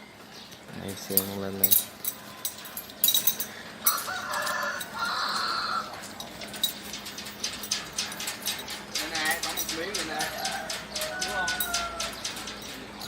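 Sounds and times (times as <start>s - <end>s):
light clicks and clinks: 0.5s - 13.0s
rooster crowing: 3.8s - 6.2s, 9.8s - 12.7s.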